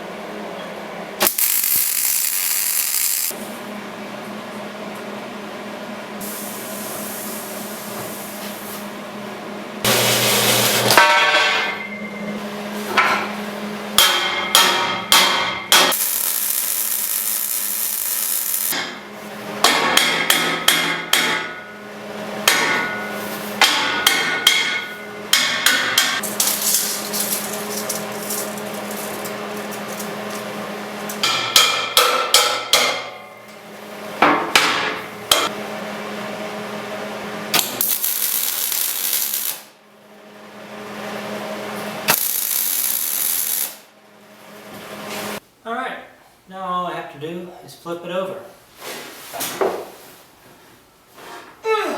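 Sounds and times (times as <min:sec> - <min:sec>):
welding crackle: 0:01.2 - 0:03.4, 0:15.9 - 0:18.8, 0:26.2 - 0:30.4, 0:37.6 - 0:39.8, 0:42.1 - 0:43.9
hammer striking steel: 0:10.9 - 0:11.9, 0:14.0 - 0:17.4, 0:19.6 - 0:21.7, 0:22.4 - 0:26.3, 0:31.2 - 0:33.4, 0:34.2 - 0:35.5.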